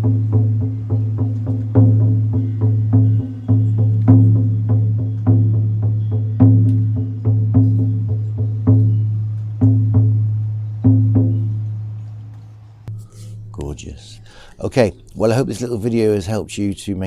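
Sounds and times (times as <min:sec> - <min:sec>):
frame drum struck with beater: 0:00.0 - 0:09.0, 0:09.6 - 0:11.9.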